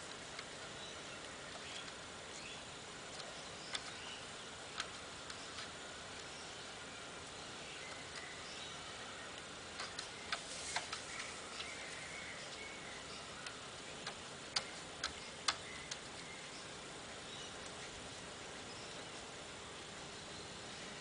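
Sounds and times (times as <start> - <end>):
sharp irregular clicks and taps: 0.0 - 0.6, 3.0 - 6.4, 7.2 - 8.4, 9.3 - 16.3
faint hiss: 0.0 - 21.0.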